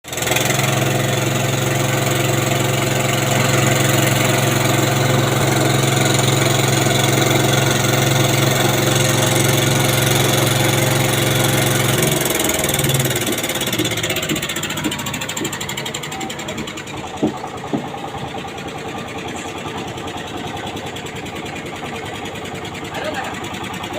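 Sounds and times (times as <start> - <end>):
engine running steadily: 0.0 - 23.9.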